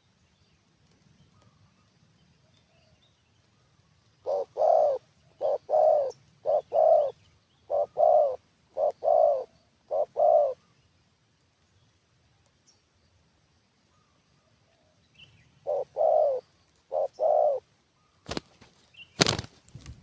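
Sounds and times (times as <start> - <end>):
dove cooing: 4.2 - 10.6, 15.6 - 17.6.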